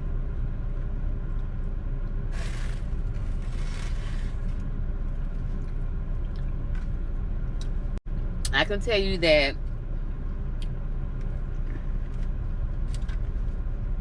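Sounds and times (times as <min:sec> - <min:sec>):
car idling inside cabin: 0:00.0 - 0:14.0
brief scraping sounds: 0:02.3 - 0:04.6.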